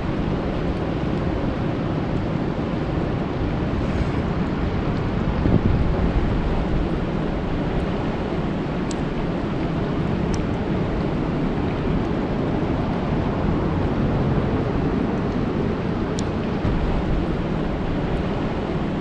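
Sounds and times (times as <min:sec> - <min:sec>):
rain falling on a lake: 0:04.5 - 0:19.0.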